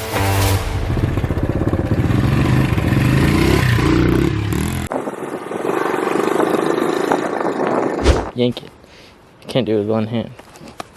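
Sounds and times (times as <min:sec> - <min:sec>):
pit bike engine revving: 0:00.8 - 0:08.0.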